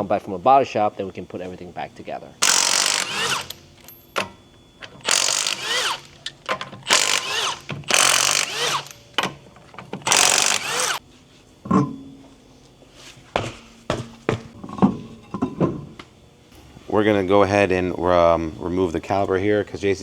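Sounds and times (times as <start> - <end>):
power tool motor whirring: 2.4 - 4.2, 4.9 - 9.0, 10.0 - 11.0.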